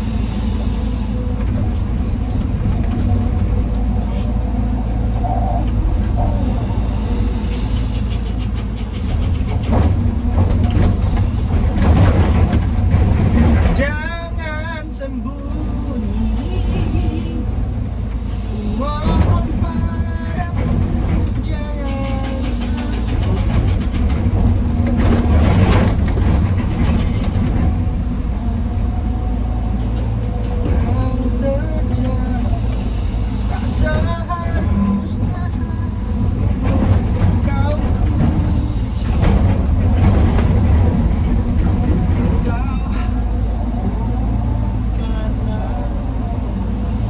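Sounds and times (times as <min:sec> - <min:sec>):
heavy diesel machinery rumbling: 0:00.0 - 0:47.0
clattering: 0:05.3 - 0:14.8, 0:18.8 - 0:28.3, 0:29.9 - 0:43.2.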